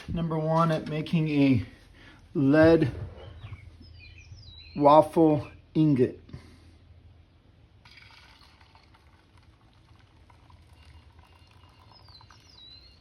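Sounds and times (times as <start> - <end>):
bird chirping: 2.8 - 5.8, 7.9 - 9.0, 10.5 - 13.0.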